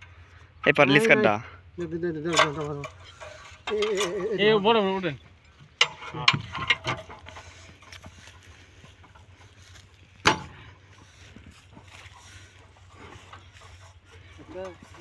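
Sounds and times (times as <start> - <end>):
metal clinking and knocking: 2.2 - 10.8.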